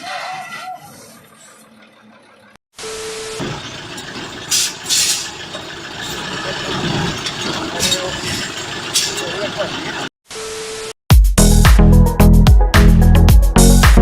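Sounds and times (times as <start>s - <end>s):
vehicle engine and road noise: 0.0s - 10.1s.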